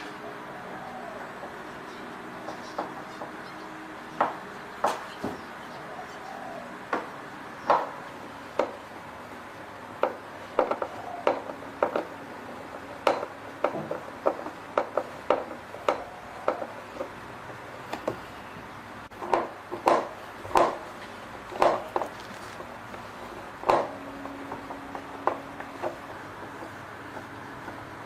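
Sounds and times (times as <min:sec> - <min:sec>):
hand tools knocking on metal parts: 0:09.9 - 0:18.3, 0:19.1 - 0:28.0.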